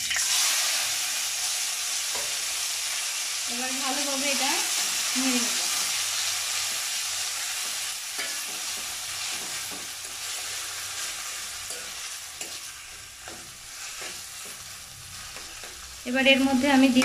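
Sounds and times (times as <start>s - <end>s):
leaves sizzling in hot oil: 0.0s - 17.0s
metal spatula scraping pan: 7.5s - 17.0s.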